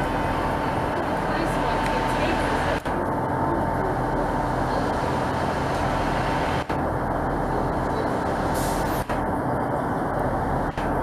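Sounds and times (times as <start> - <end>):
train engine droning: 0.0 - 11.0.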